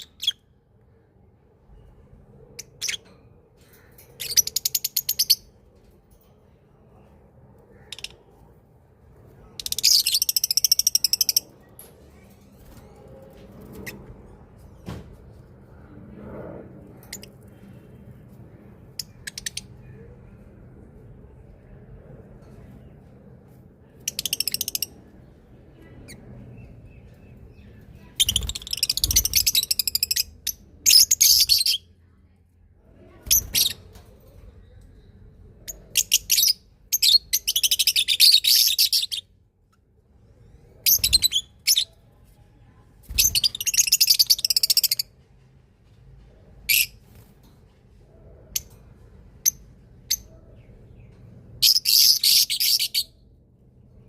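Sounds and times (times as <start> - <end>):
small birds chirping: 49.4 - 53.2.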